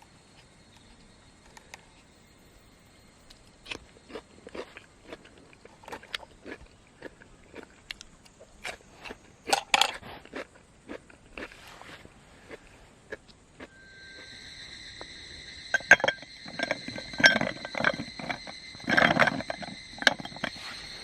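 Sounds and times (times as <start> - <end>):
crunching and snapping clicks: 3.2 - 11.6.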